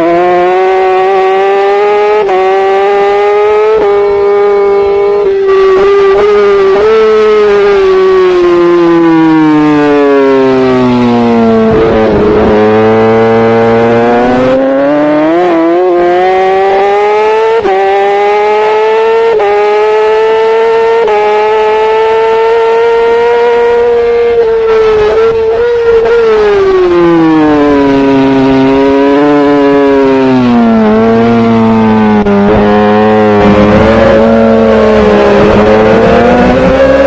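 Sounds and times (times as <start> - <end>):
superbike engine revving: 0.0 - 37.0
wind on microphone: 11.5 - 12.9.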